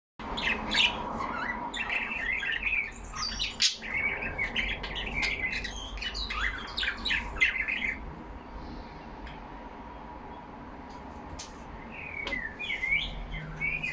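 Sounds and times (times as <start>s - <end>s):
budgerigars chattering: 0.3s - 8.0s.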